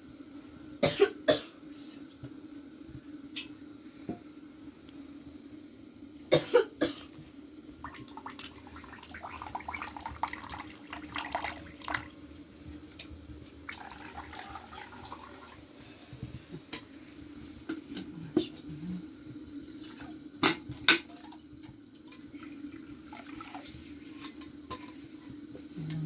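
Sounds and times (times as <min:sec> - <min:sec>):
person coughing: 0:00.8 - 0:01.6, 0:06.3 - 0:07.1.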